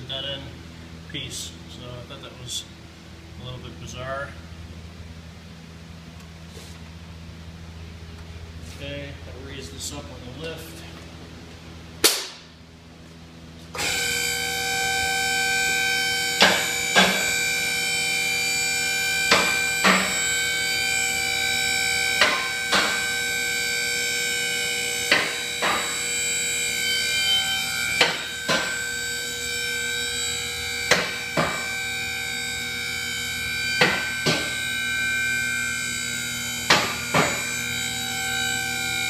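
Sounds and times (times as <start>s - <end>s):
hydraulic pump whining: 13.7s - 39.0s.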